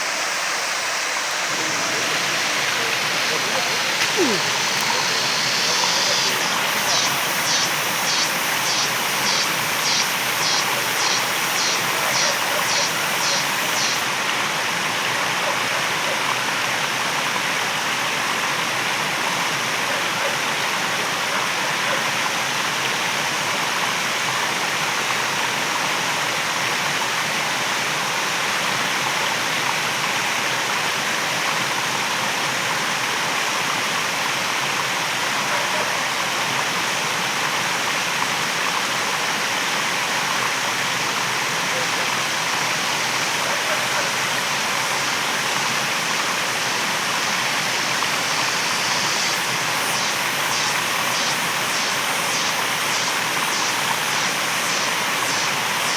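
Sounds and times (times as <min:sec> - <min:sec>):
waterfall rushing: 0:00.0 - 0:15.1, 0:39.8 - 0:55.9
high-pitched pulsing call: 0:01.4 - 0:14.1, 0:44.8 - 0:55.9.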